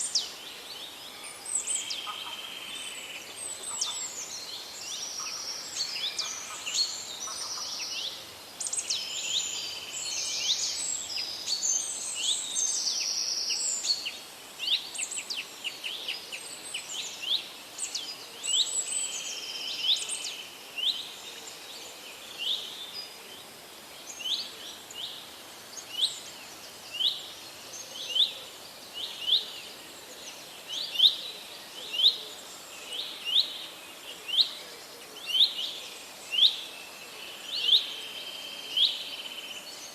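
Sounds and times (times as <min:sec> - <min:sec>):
birds chirping and singing: 0:00.0 - 0:21.1
faint steady hiss: 0:00.0 - 0:39.9.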